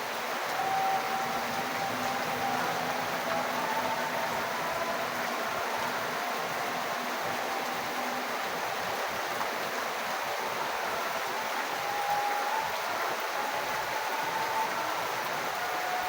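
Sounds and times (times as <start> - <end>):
rainwater falling and running: 0.0 - 16.0.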